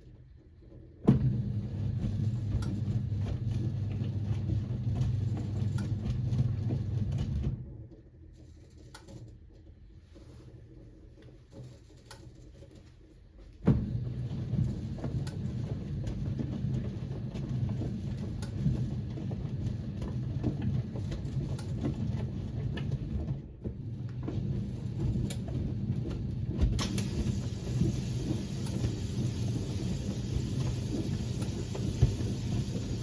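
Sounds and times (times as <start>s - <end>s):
washing machine drum turning: 24.3s - 33.0s.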